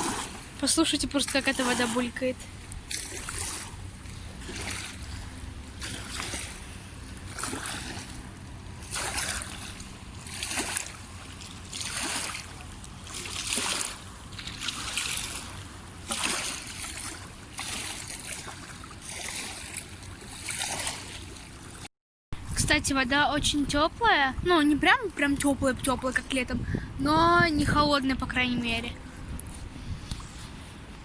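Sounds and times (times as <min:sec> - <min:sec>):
small waves lapping: 0:00.0 - 0:21.9
low steady rumble: 0:00.0 - 0:31.0.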